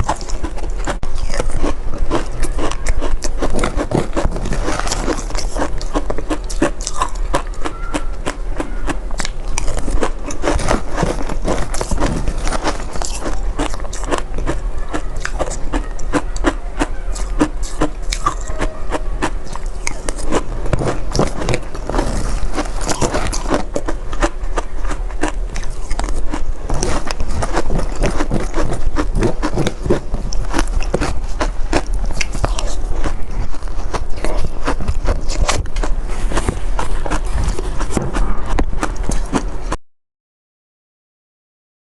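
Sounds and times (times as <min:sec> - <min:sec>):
chewing shaved ice: 0:00.0 - 0:39.8.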